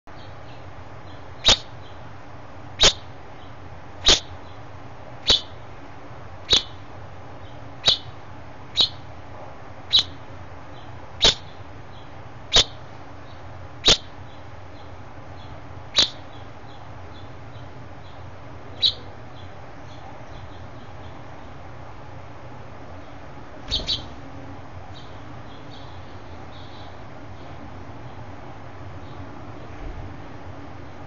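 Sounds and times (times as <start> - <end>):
finch chirping: 0.1 - 2.0, 2.8 - 4.6, 5.2 - 5.6, 6.5 - 6.8, 7.4 - 9.1, 9.9 - 21.2, 23.7 - 24.2, 24.9 - 27.5.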